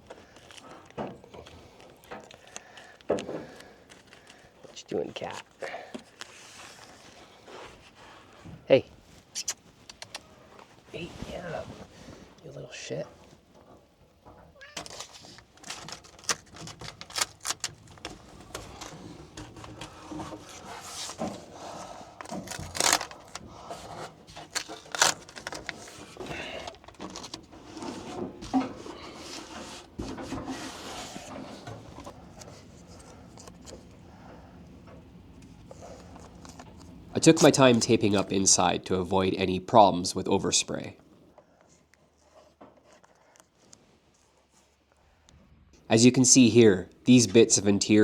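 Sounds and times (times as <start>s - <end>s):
handling clicks and knocks: 14.2s - 20.4s
masking tape tearing: 14.8s - 18.9s, 22.2s - 23.4s, 24.4s - 26.1s.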